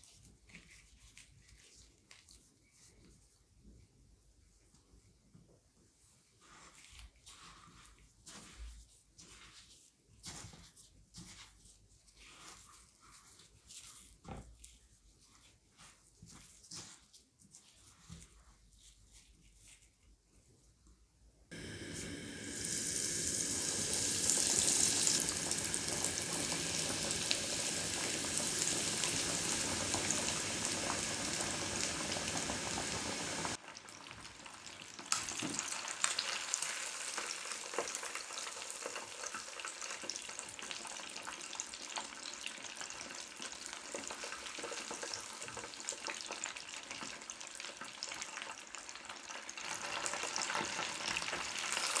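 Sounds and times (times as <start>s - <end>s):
chicken deep-frying in hot oil: 21.5s - 52.0s.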